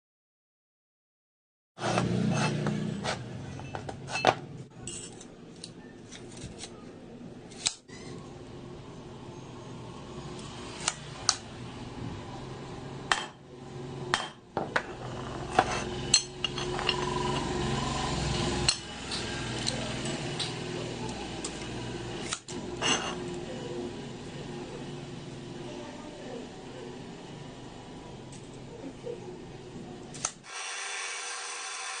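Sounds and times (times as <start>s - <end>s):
metal tools clinking: 3.6s - 5.3s, 15.5s - 17.4s.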